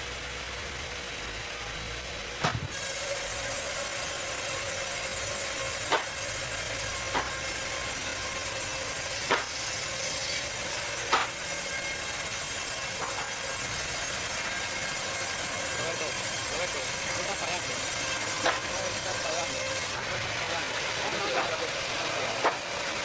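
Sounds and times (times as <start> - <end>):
sharp knocks: 2.4 - 2.7, 5.8 - 6.2, 7.0 - 7.4, 9.3 - 9.6, 11.1 - 11.4
saw hissing: 2.6 - 23.0.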